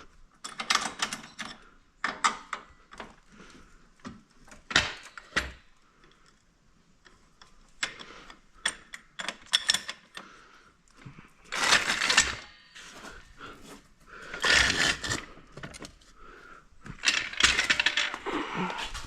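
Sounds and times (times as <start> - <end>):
metal tools clinking: 17.0 - 19.0.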